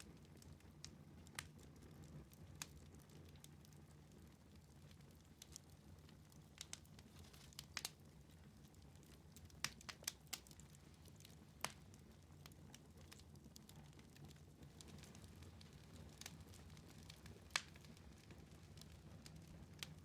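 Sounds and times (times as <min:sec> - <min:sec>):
wood fire crackling: 0:00.0 - 0:20.0
sharp pops from fire: 0:05.4 - 0:20.0.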